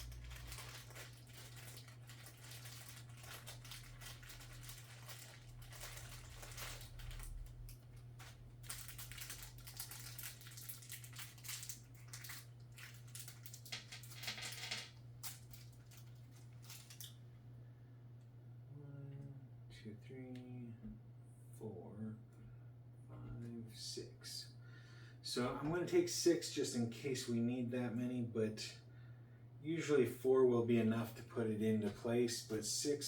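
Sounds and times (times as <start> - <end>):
plastic bag crinkling: 0.0 - 17.2
steady low hum: 0.0 - 33.0.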